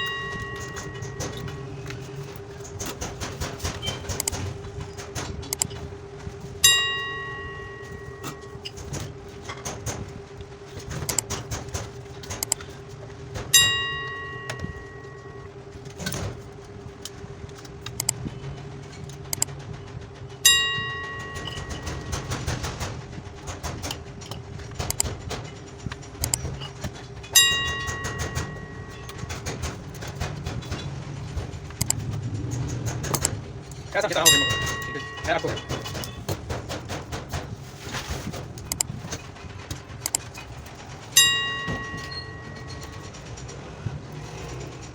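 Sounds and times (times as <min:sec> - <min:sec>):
steady hum: 0:00.0 - 0:44.9
small clicks: 0:31.7 - 0:33.8
bell-like chime: 0:41.2 - 0:43.0.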